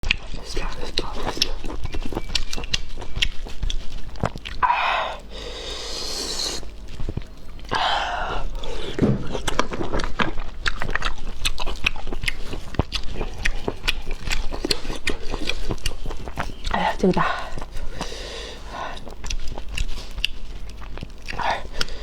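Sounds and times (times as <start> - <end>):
person chewing food: 0.0 - 22.0
airy hissing: 4.6 - 6.7.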